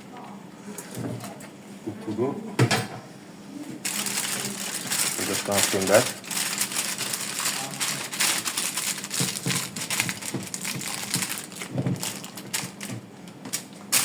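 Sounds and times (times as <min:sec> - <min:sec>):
aluminium foil crinkling: 0:03.8 - 0:14.0.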